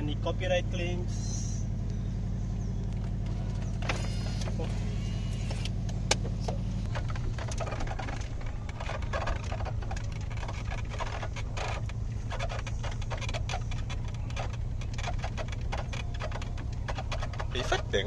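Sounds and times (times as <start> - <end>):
car engine droning: 0.0 - 18.0
interior clicks and rattles: 0.0 - 18.0.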